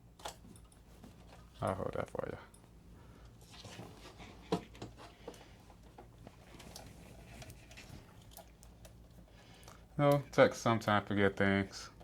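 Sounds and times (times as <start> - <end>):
small clicks and rustling of parts: 0.1 - 3.6, 4.5 - 10.3.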